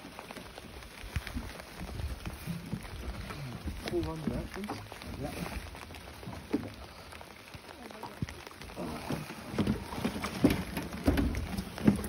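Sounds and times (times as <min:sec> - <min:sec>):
rain hissing: 0:00.0 - 0:12.0
sharp taps of raindrops: 0:00.0 - 0:12.0.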